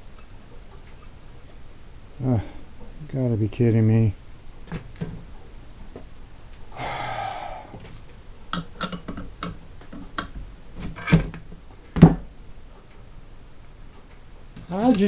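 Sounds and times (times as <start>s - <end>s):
metal tools clicking and tapping: 8.5s - 11.5s
loud knocks: 11.9s - 12.3s.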